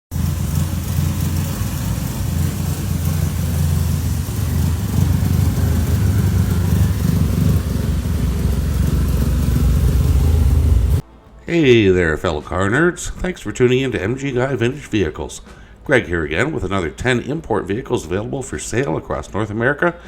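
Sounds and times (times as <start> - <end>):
car engine idling: 0.1 - 11.0.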